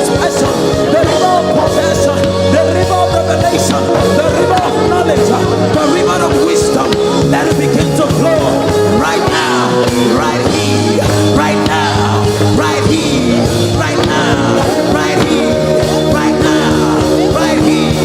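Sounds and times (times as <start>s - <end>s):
held chords: 0.0s - 18.0s
person singing: 0.0s - 18.0s.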